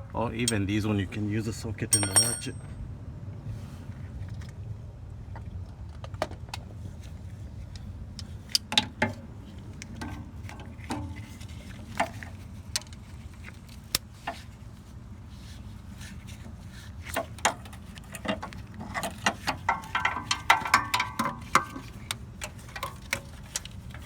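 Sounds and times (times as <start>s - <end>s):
low steady hum: 0.0s - 3.4s.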